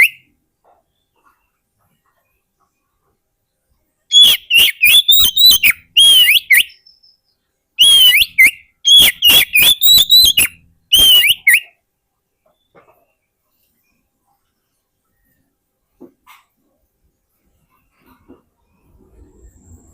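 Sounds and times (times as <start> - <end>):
bird whistling song: 0.0 - 0.3, 4.1 - 11.8.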